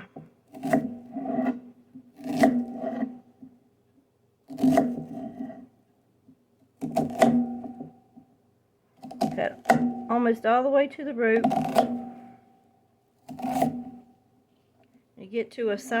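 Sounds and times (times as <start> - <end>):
knife cutting onion on board: 0.2 - 3.3, 4.5 - 5.7, 6.8 - 7.9, 11.4 - 12.2, 13.2 - 14.1.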